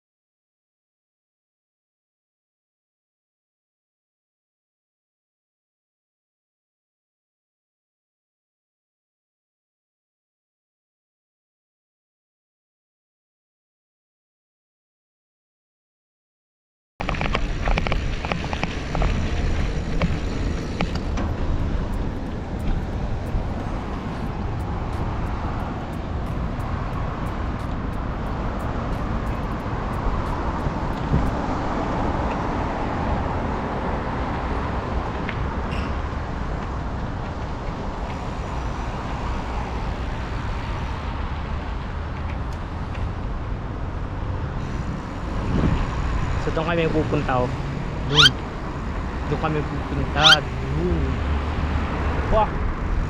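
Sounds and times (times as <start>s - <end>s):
road traffic noise: 17.0s - 53.0s
wind rumble on microphone: 17.0s - 53.0s.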